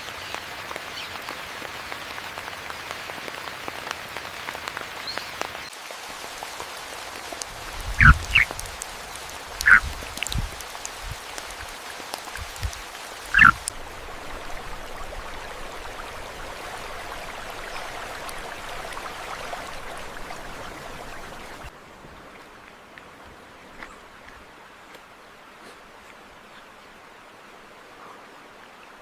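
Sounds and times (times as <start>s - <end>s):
steady rain hiss: 0.0s - 29.0s
croak-like animal call: 8.0s - 8.5s, 9.6s - 9.9s, 13.3s - 13.7s.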